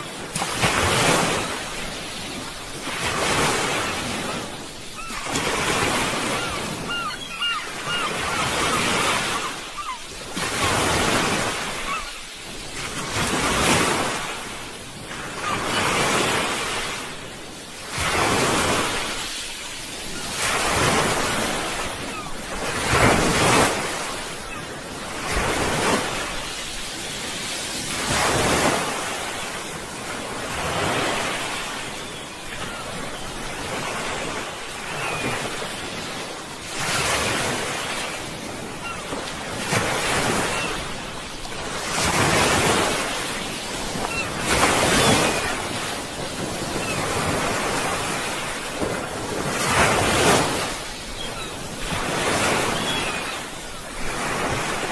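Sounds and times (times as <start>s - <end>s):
sea waves breaking on shore: 0.0s - 54.9s.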